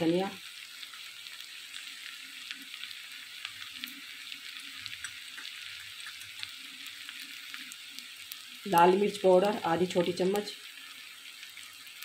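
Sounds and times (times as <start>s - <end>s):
food frying in oil: 0.0s - 12.0s.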